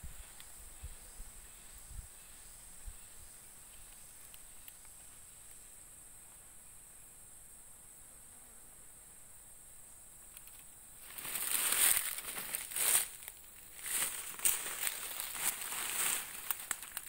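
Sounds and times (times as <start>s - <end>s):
leaves and brush rustling: 10.3s - 17.0s.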